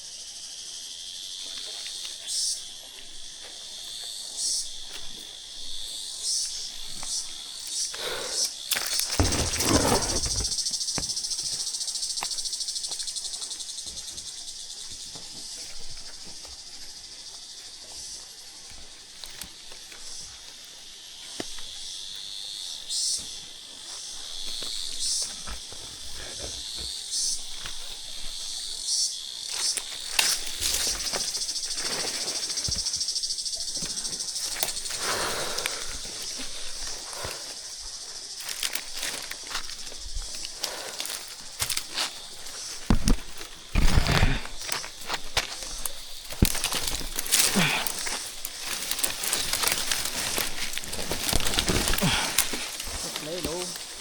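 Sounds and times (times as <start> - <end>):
shrill insect chorus: 0.0 - 54.0
handling rustling and knocking: 8.8 - 11.2, 41.6 - 54.0.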